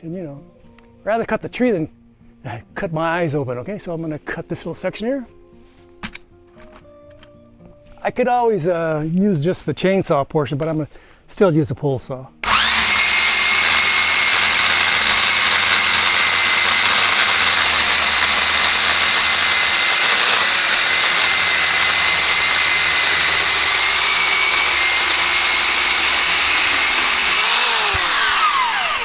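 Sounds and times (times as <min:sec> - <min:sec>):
electric pole saw whining: 0:12.4 - 0:29.0.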